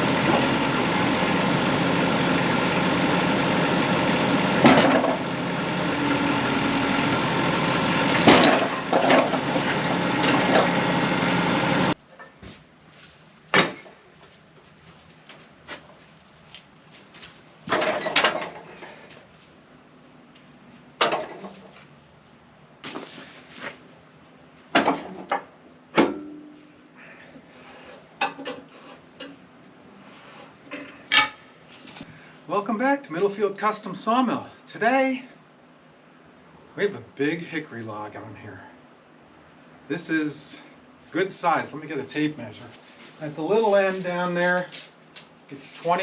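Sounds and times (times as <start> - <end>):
engine idling: 0.0 - 12.0
wood and metal clatter: 4.6 - 5.2, 8.1 - 10.8, 17.6 - 19.1, 21.0 - 21.7, 24.7 - 26.3.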